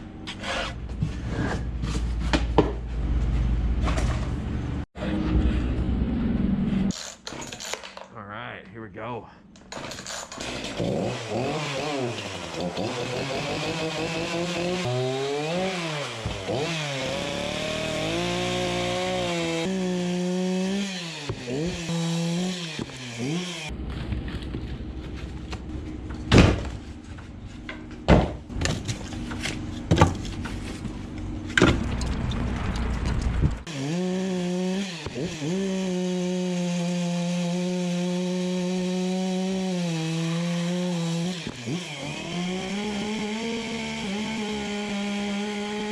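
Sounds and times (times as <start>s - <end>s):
chainsaw revving and cutting log: 9.8s - 23.8s, 33.6s - 45.9s.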